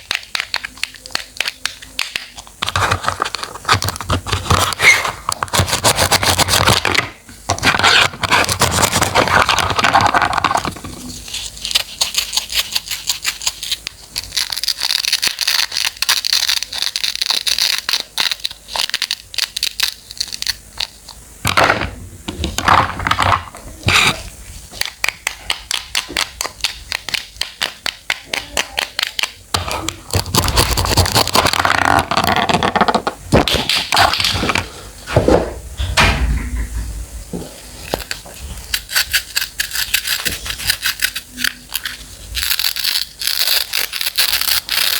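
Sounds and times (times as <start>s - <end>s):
knife cutting crisp vegetables: 37.9s - 44.9s.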